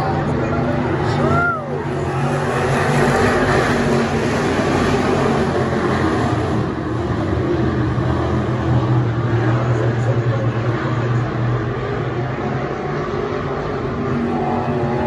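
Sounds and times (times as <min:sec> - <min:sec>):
race car engines roaring: 0:00.0 - 0:15.0.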